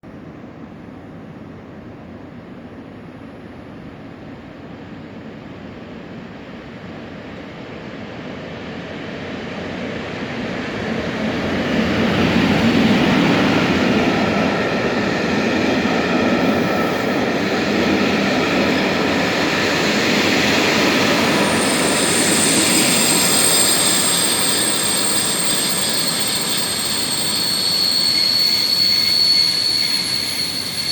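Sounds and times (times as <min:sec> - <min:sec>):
train wheels rolling on rails: 0:10.3 - 0:30.9
high-pitched brake squeal: 0:10.5 - 0:30.9.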